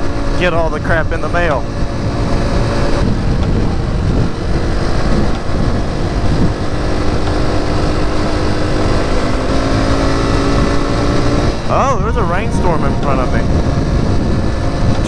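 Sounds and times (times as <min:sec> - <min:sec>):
motorcycle engine running: 0:00.0 - 0:15.0
wind noise: 0:00.0 - 0:15.0.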